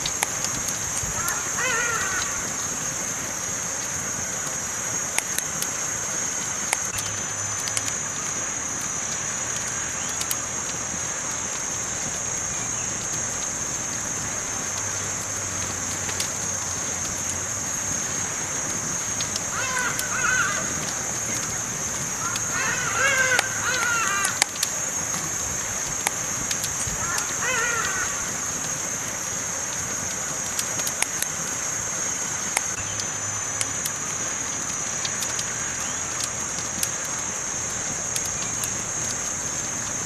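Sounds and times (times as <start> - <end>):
campfire crackling: 0.0 - 40.0
bird calling: 1.0 - 2.9, 19.2 - 26.0, 26.8 - 28.7.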